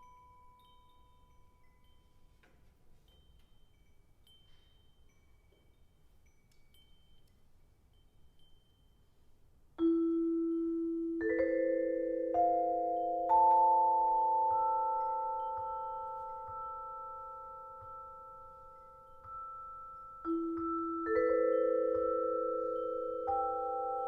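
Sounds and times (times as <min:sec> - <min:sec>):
vibraphone notes ringing: 0:00.0 - 0:02.4, 0:09.8 - 0:24.0
faint high tinkling: 0:00.0 - 0:24.0.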